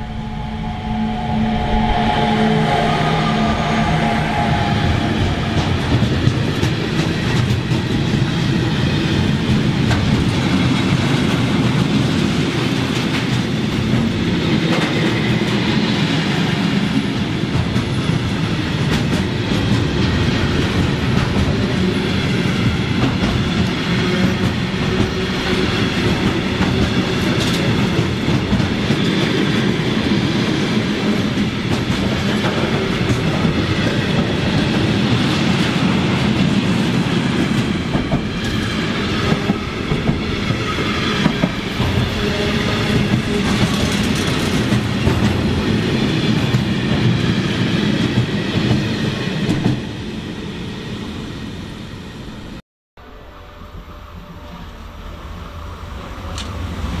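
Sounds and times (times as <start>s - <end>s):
train wheels rumbling on rails: 0.0s - 52.6s, 55.1s - 57.0s
rail joint clicks: 37.6s - 45.6s, 56.3s - 56.9s.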